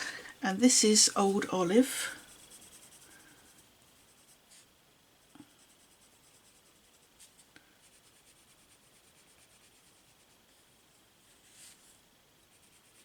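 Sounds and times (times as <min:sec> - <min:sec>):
pencil scratching on card: 0:02.2 - 0:04.7, 0:05.5 - 0:10.7, 0:12.5 - 0:13.0.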